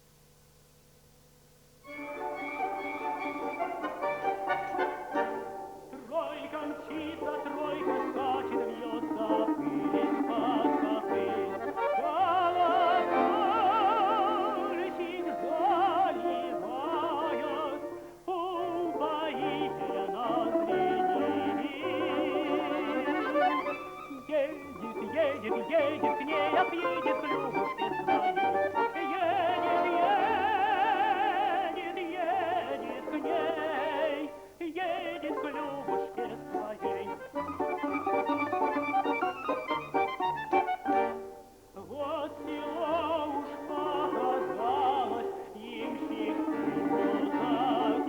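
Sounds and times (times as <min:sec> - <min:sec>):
instrumental ensemble: 0:01.8 - 0:06.1, 0:19.0 - 0:31.0, 0:35.2 - 0:41.8
man singing classical style: 0:01.9 - 0:48.0.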